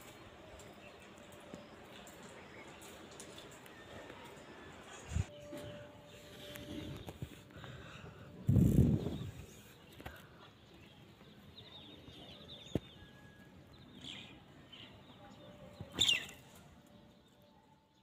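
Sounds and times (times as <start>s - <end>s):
small birds chirping: 4.8s - 18.0s.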